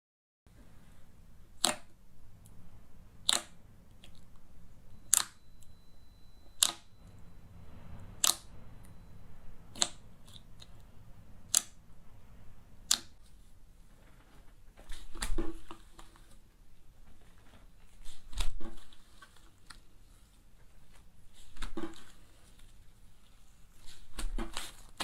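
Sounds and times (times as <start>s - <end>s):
slime clicking: 1.6s - 2.0s, 3.2s - 4.3s, 8.2s - 8.5s, 9.7s - 10.7s, 11.5s - 11.8s
soft slime handling noise: 12.2s - 25.0s.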